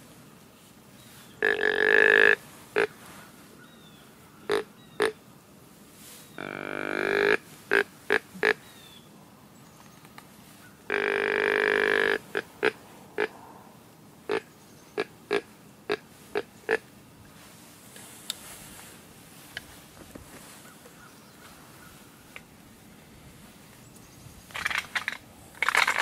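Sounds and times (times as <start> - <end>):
deer grunt call: 1.4 - 3.0, 4.5 - 5.2, 6.4 - 8.6, 10.9 - 13.5.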